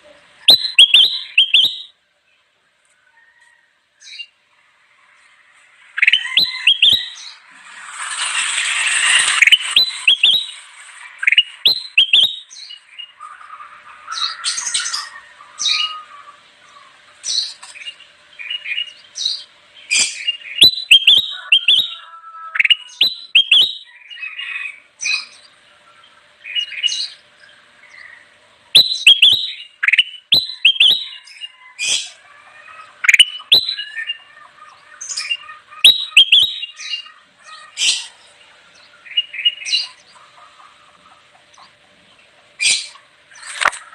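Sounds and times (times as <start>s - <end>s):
harsh noisy bird call: 0.0s - 2.0s, 4.0s - 41.8s
bulbul chirping and whistling: 0.4s - 2.0s, 5.9s - 12.8s, 18.4s - 22.0s, 22.6s - 23.9s, 28.8s - 32.2s, 33.0s - 34.3s, 35.0s - 37.1s.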